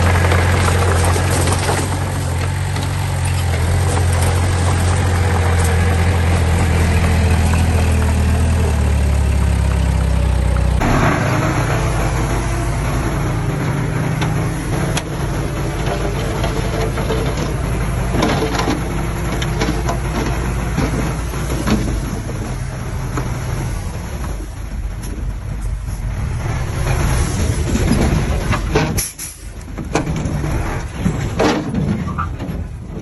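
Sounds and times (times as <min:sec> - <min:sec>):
diesel engine running: 0:00.0 - 0:33.0
knocks and clanks: 0:10.8 - 0:23.6, 0:26.7 - 0:33.0.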